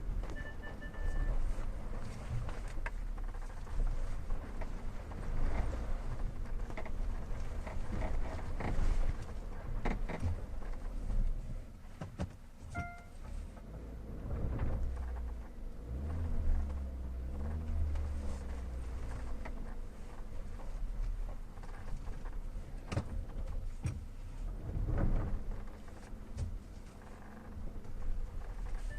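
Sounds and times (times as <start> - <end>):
knocks and creaks in car cabin: 0.0 - 28.9
low road rumble: 0.0 - 28.9
short beep: 0.2 - 1.4, 12.7 - 13.2
squeak over uneven road: 25.0 - 28.9.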